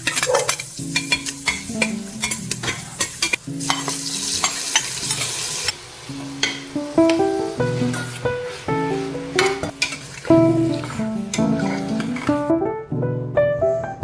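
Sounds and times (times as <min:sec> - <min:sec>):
utensil scraping a pan: 0:00.0 - 0:05.7, 0:09.7 - 0:12.5
food sizzling in a pan: 0:00.0 - 0:12.5
soft background music: 0:00.0 - 0:14.0.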